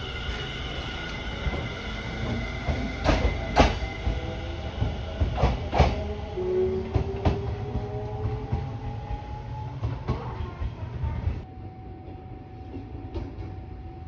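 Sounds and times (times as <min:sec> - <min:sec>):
electric train rumble: 0:00.0 - 0:14.0
train wheels clacking over joints: 0:00.2 - 0:08.7.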